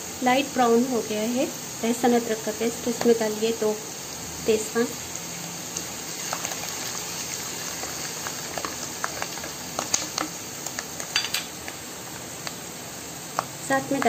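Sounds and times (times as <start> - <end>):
paste sizzling in hot oil: 0.0 - 14.0
spatula stirring: 5.8 - 12.2.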